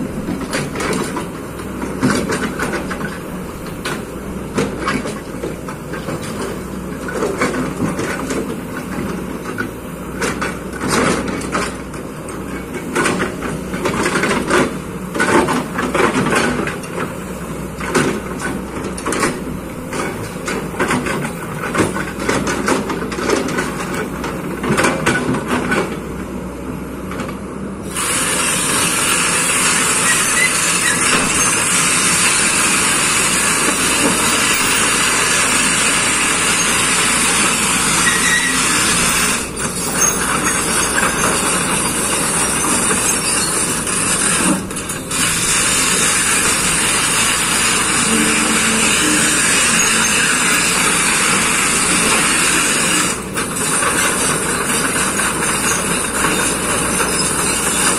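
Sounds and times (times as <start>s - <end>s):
excavator engine humming: 0.0s - 57.9s
loud steady hiss: 27.9s - 39.6s.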